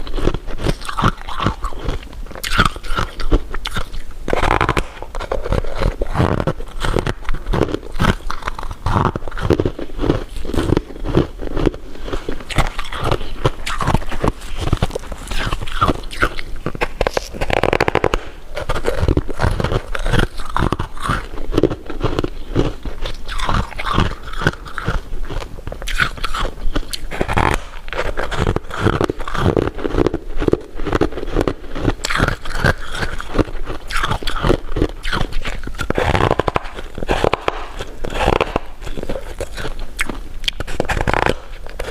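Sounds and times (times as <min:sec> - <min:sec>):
crunchy candy chewing: 0:00.0 - 0:41.9.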